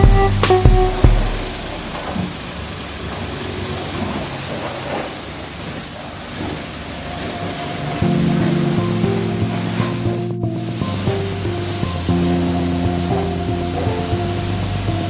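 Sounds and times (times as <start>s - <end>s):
music: 0.0s - 2.0s, 8.0s - 15.0s
pressure washer spray hissing: 0.0s - 15.0s.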